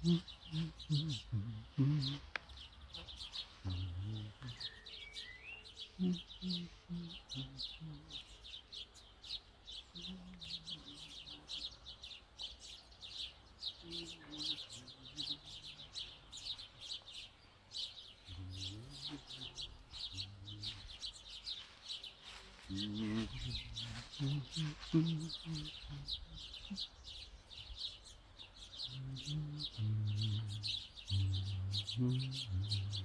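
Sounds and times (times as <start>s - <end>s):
songbirds chirping: 0.0s - 33.0s.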